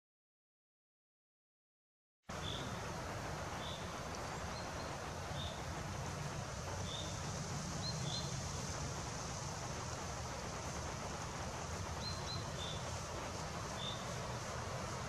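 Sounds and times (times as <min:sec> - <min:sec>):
outdoor hiss: 0:02.3 - 0:15.0
songbird high chirps: 0:02.4 - 0:02.7, 0:03.6 - 0:05.6, 0:06.8 - 0:07.2, 0:07.8 - 0:08.4, 0:11.9 - 0:13.1, 0:13.7 - 0:14.2.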